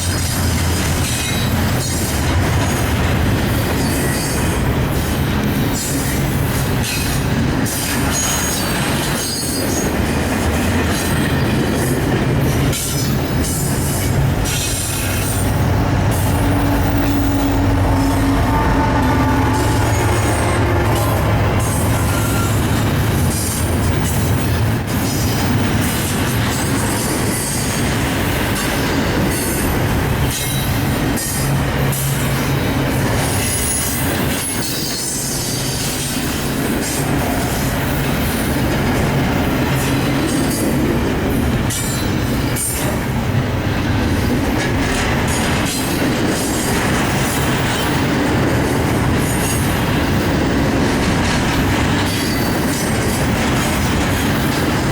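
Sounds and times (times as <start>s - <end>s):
train wheels clattering over rails: 0.0s - 54.9s
high wheel squeal: 13.9s - 24.2s.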